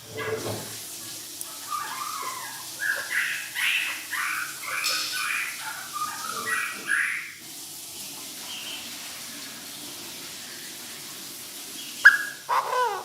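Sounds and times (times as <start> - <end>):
francolin calling: 1.6 - 7.4, 11.8 - 13.0.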